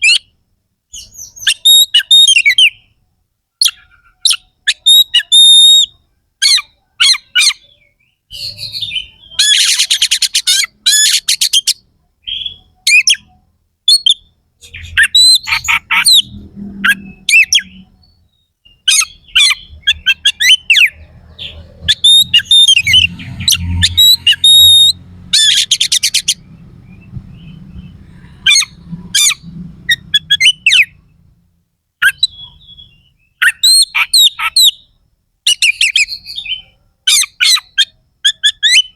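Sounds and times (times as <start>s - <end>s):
bird singing varied phrases: 0.0s - 3.0s, 3.6s - 31.4s, 32.0s - 38.9s.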